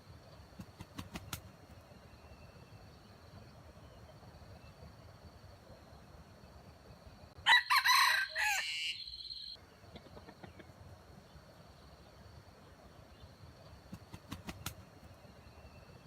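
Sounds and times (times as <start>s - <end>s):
rooster crowing: 7.4s - 9.6s.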